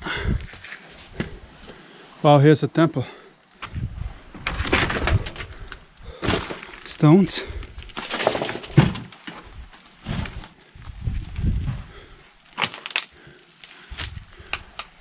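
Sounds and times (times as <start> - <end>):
footsteps on stones and twigs: 3.5 - 15.0
twigs cracking: 4.4 - 10.9, 12.0 - 15.0.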